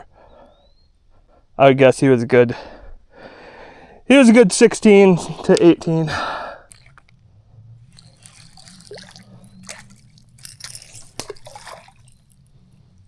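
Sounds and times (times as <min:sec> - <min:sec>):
low steady hum: 0:04.8 - 0:13.0
water drips and splashes: 0:06.6 - 0:13.0.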